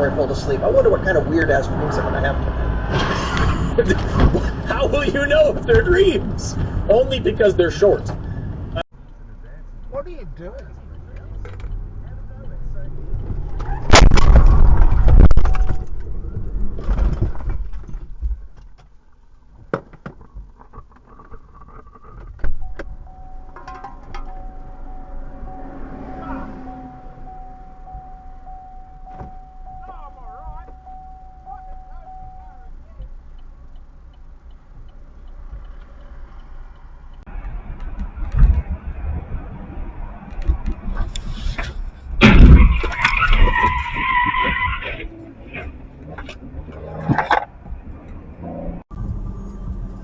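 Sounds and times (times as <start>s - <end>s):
car road and engine rumble: 0.0s - 50.0s
vehicle collision bang: 13.5s - 16.0s, 42.0s - 43.6s.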